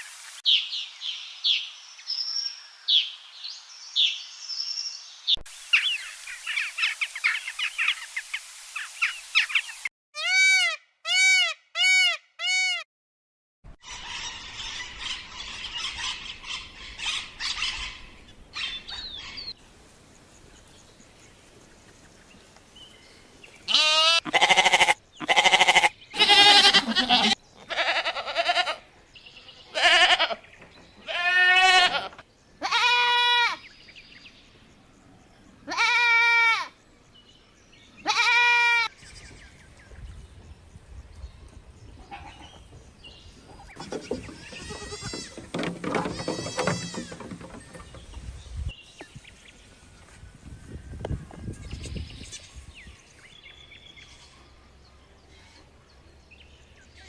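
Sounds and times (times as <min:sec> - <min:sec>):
goat bleating: 0:23.7 - 0:28.9, 0:29.5 - 0:30.4, 0:31.0 - 0:33.6, 0:35.7 - 0:36.7, 0:38.0 - 0:38.9, 0:42.0 - 0:42.6, 0:44.1 - 0:47.2.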